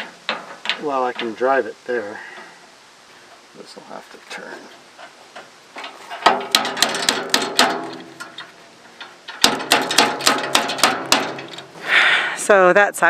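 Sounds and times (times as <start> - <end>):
metal clanking and knocking: 0.0 - 1.4, 5.0 - 11.8.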